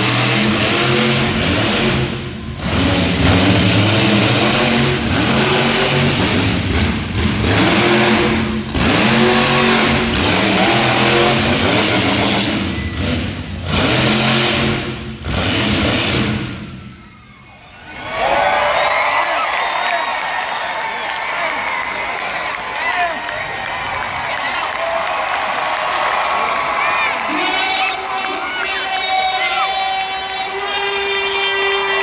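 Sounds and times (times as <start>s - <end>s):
truck engine revving hard: 0.0s - 16.8s.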